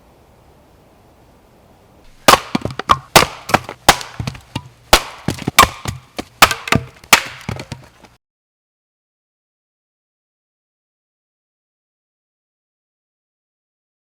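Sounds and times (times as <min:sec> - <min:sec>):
axe chopping wood: 0:02.2 - 0:08.1.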